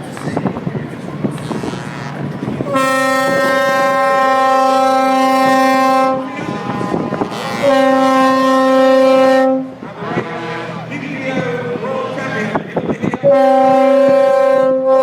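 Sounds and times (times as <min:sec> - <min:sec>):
truck air horn blasts: 0:01.4 - 0:10.9, 0:13.2 - 0:15.0.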